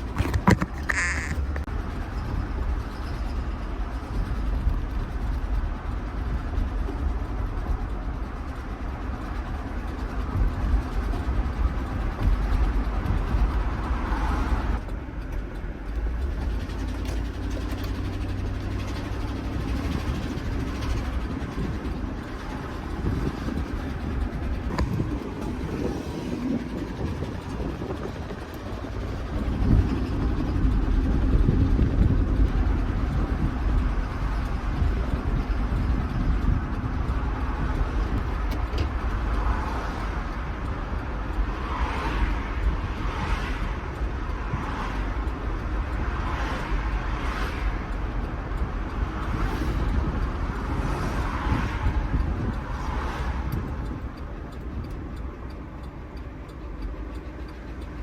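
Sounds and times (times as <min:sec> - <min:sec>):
engine with rod knock: 0:00.0 - 0:02.4, 0:06.3 - 0:43.7
tyre and road noise: 0:00.0 - 0:58.0.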